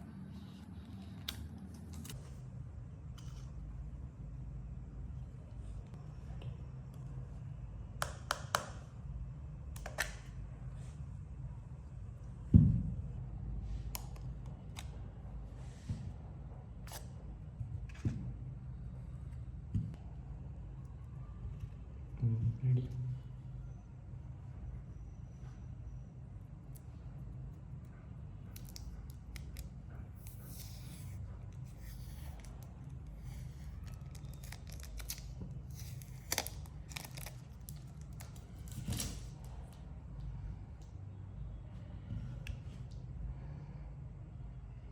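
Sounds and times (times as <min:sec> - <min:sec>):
steady low hum: 0:00.0 - 0:44.9
packaging rustling and tearing: 0:33.2 - 0:39.3.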